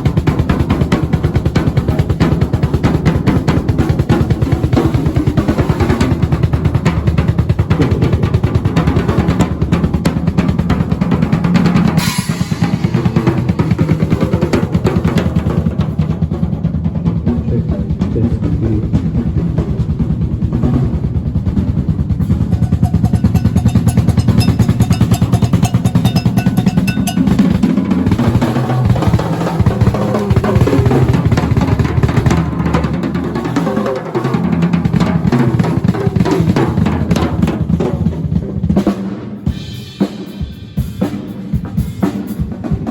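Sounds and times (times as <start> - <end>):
drum kit rolls and fills: 0.0 - 42.9
cymbal crash: 12.0 - 13.8, 22.2 - 28.6.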